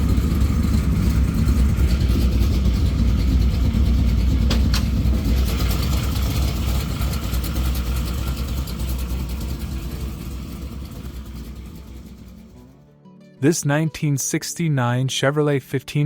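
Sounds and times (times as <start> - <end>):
pickup engine idling: 0.0 - 12.7.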